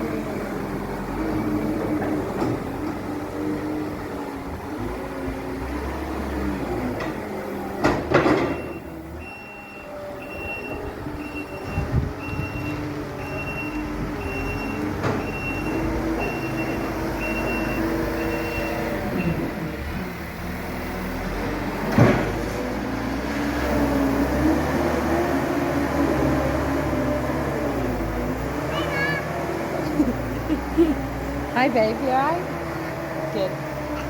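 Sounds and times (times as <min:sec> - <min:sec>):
heavy machinery engine running: 0:00.0 - 0:34.0
reversing alarm beeping: 0:08.5 - 0:19.5.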